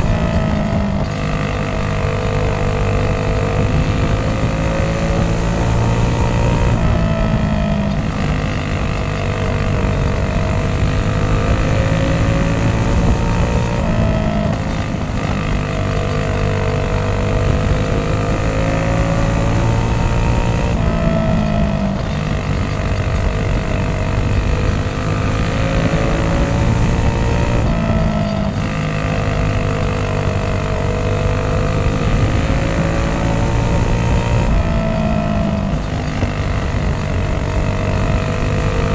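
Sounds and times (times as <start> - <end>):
go-kart engines racing: 0.0 - 38.9.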